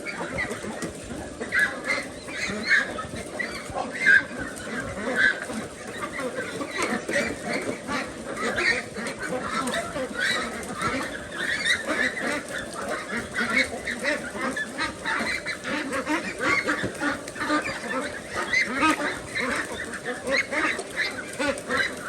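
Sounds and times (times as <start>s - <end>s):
ducks quacking: 0.0s - 22.0s.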